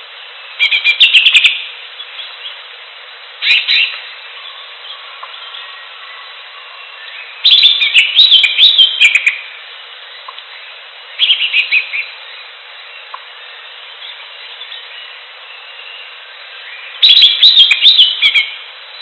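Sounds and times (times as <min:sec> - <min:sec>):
steady background hiss: 0:00.0 - 0:19.0
bird singing whistles and chatter: 0:03.4 - 0:09.5, 0:11.2 - 0:19.0.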